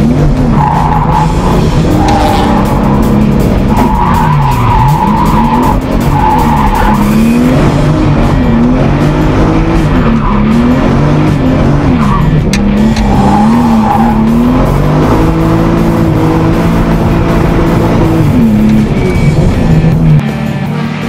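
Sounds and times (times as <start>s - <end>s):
car engine revving: 0.0s - 21.0s
tyre squeal: 18.4s - 19.6s.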